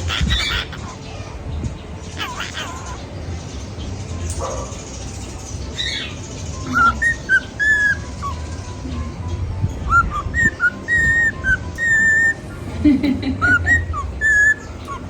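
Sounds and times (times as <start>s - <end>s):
cockatiel chirps: 0.0s - 1.0s, 5.8s - 8.6s, 9.9s - 12.5s, 13.4s - 15.0s
cockatiel whistling notes: 5.8s - 8.8s, 9.7s - 15.0s.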